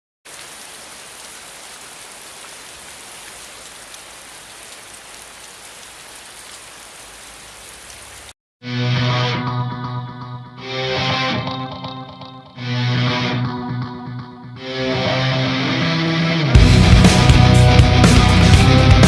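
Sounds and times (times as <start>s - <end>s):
loud distorted electric guitar music: 8.7s - 19.0s.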